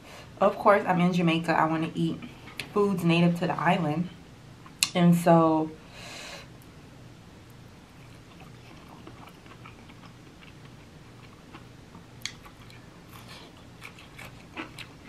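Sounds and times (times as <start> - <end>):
chewing and wet mouth sounds: 7.9 - 15.0.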